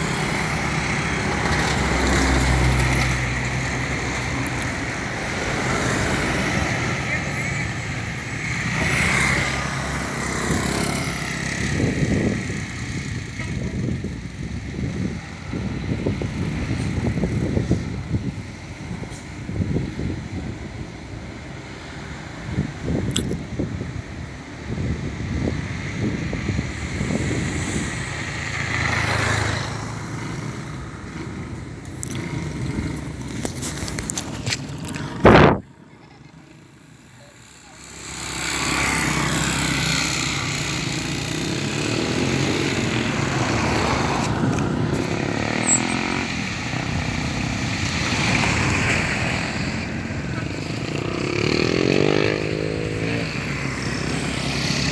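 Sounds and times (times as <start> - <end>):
motorcycle engine running: 0.0 - 20.8, 22.6 - 54.9
motorcycle engine running roughly: 36.6 - 54.9.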